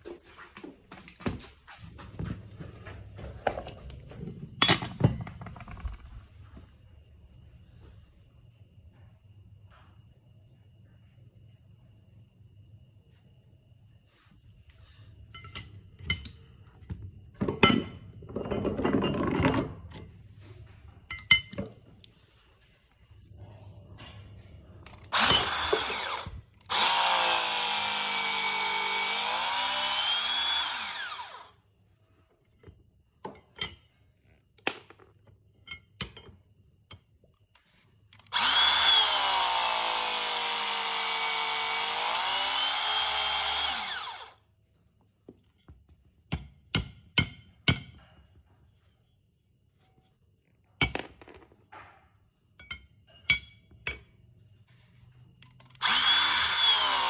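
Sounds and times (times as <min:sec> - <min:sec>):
hydraulic cutter motor whine: 0:24.9 - 0:31.6, 0:38.2 - 0:44.4, 0:55.7 - 0:57.0.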